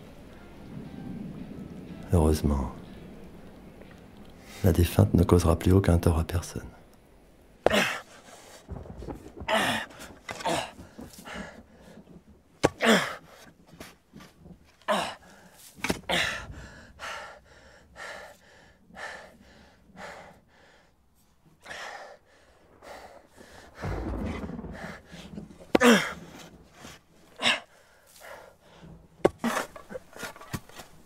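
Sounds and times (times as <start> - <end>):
man gasping and breathing hard: 14.9 - 21.0, 21.6 - 29.9.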